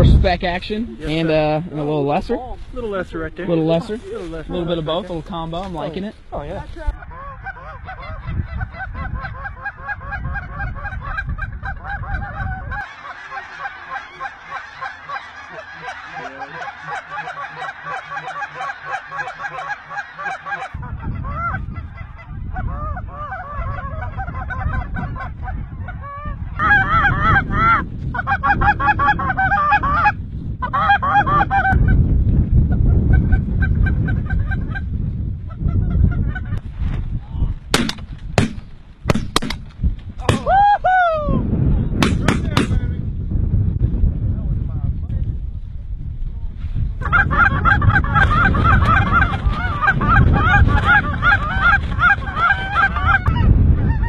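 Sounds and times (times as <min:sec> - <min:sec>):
wind rumble on microphone: 0:00.0 - 0:12.9, 0:17.5 - 0:54.0
geese honking: 0:05.8 - 0:32.0, 0:47.0 - 0:54.0.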